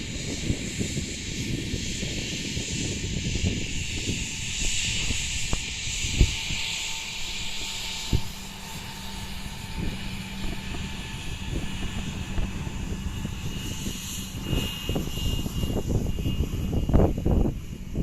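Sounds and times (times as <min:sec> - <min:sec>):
airplane engines humming: 0:00.0 - 0:18.0
hiss: 0:00.4 - 0:12.1.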